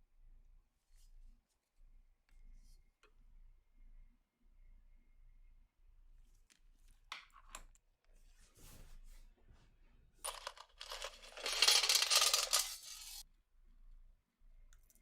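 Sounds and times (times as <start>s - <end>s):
metal parts clinking: 10.3s - 13.2s.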